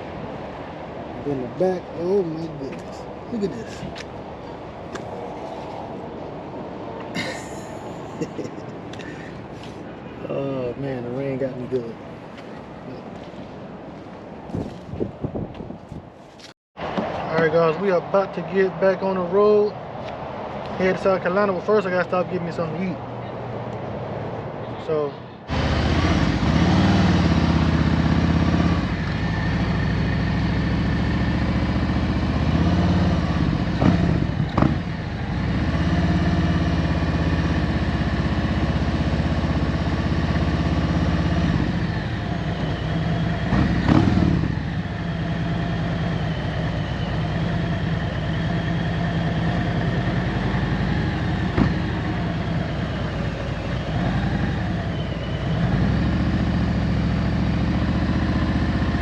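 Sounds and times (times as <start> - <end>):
motorcycle engine revving: 25.5 - 59.0.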